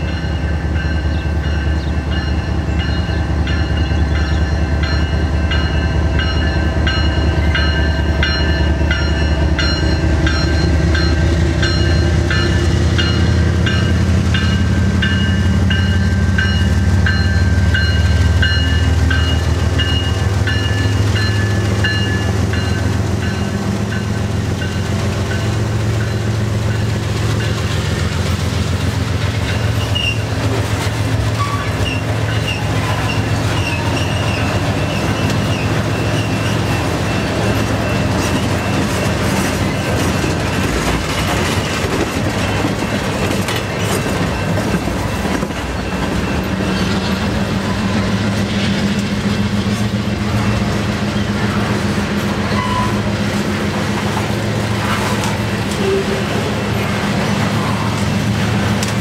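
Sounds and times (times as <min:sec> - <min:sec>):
train wheels rumbling on rail: 0:00.0 - 0:59.0
high wheel squeal: 0:29.5 - 0:30.4, 0:31.3 - 0:39.0, 0:44.3 - 0:48.0, 0:52.4 - 0:53.1.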